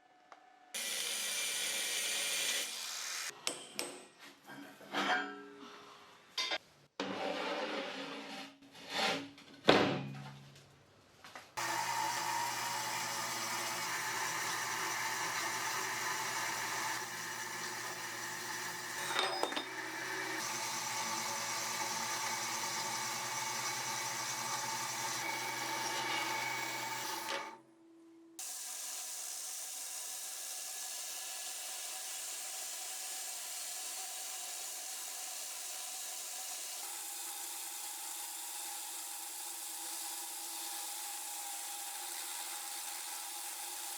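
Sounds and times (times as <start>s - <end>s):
quieter steady tool noise: 0.7s - 3.9s, 11.6s - 27.6s, 28.4s - 43.9s
electric power tool running: 0.8s - 3.3s, 11.6s - 27.6s.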